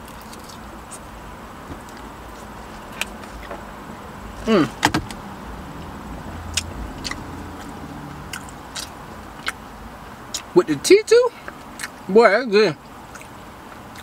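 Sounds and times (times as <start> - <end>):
low car interior hum: 0.0 - 14.0
short falling vocal sound: 4.4 - 4.8
person chewing with mouth clicks: 6.5 - 9.6, 10.3 - 10.5, 11.4 - 12.0, 13.1 - 14.0.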